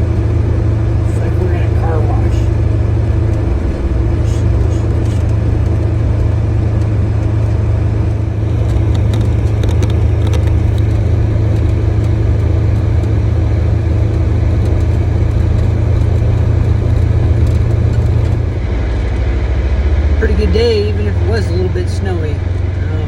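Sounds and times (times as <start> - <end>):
vehicle engine rumble: 0.0 - 23.0.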